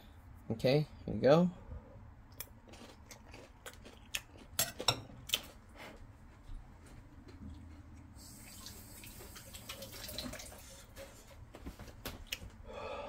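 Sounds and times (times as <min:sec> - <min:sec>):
faint chewing of crispy food: 0:02.3 - 0:06.4.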